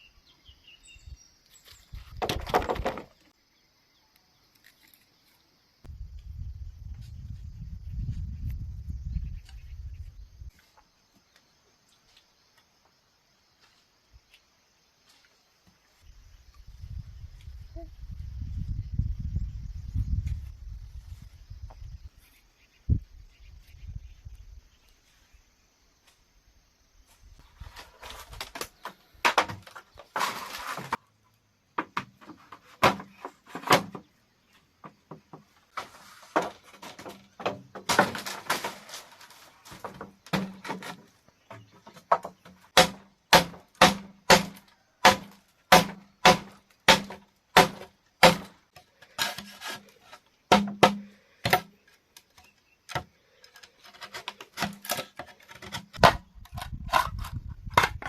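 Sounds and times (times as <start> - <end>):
scraping: 27.4 - 31.0, 35.7 - 41.1
tool knocking on bamboo: 50.5 - 51.7.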